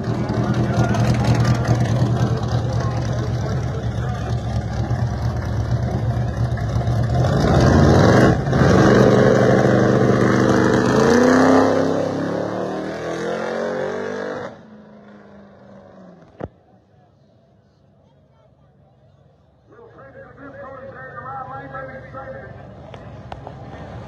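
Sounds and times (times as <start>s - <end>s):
car engines revving hard: 0.0s - 16.5s.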